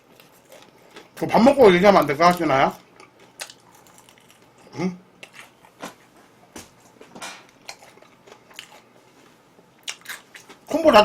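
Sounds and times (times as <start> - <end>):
person chewing food: 0.0 - 1.2, 2.3 - 10.7.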